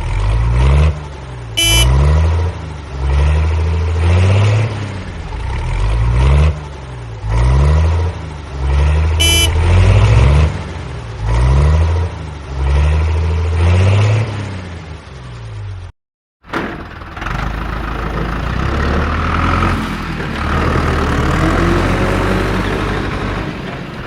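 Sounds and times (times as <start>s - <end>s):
tractor engine revving: 0.0s - 14.3s, 16.8s - 24.0s
horn beep: 1.6s - 2.0s, 9.2s - 9.8s.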